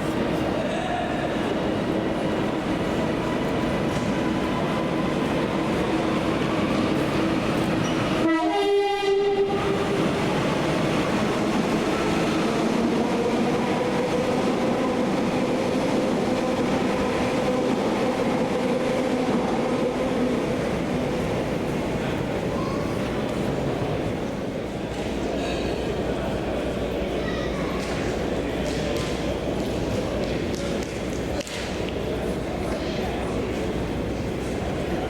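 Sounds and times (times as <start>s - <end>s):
train rumbling past: 0.0s - 35.0s
train horn blast: 8.2s - 10.0s.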